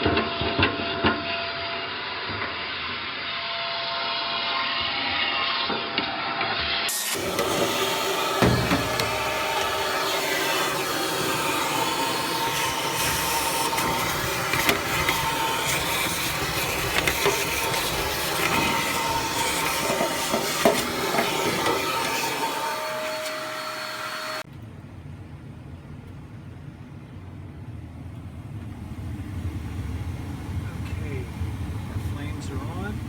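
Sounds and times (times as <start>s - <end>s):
vacuum cleaner running: 6.6s - 24.5s, 28.1s - 33.0s.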